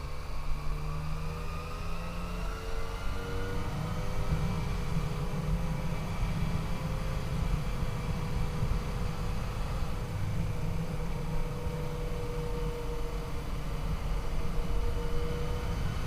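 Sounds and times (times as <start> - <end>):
wind rumble on microphone: 3.0 - 16.0.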